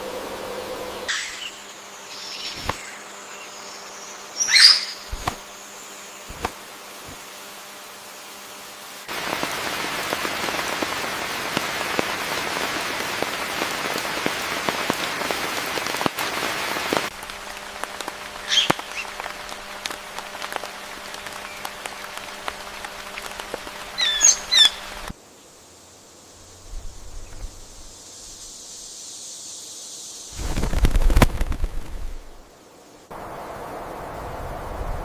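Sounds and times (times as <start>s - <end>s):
faint steady hum: 0.0s - 35.0s
bird call: 0.8s - 5.4s, 18.4s - 19.5s, 23.9s - 25.1s
high chirps: 4.3s - 5.3s
rain falling: 9.0s - 25.2s, 33.1s - 35.0s.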